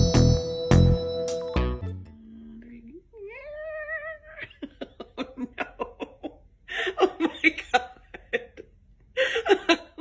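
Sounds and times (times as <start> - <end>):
person laughing: 4.0 - 10.0.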